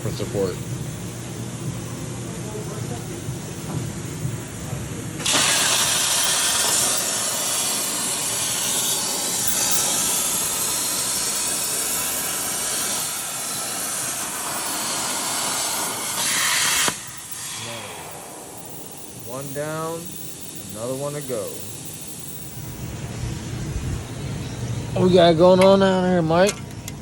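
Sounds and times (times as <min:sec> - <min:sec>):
plasma torch hissing: 0:05.2 - 0:25.2.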